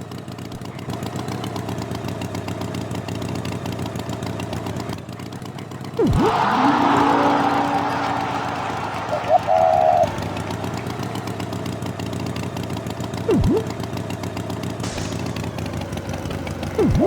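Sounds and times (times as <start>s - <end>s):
engine running: 0.7s - 17.0s
pitch swoop down and up: 6.0s - 11.1s, 13.3s - 13.7s, 16.8s - 17.0s
short high tone: 13.3s - 13.7s.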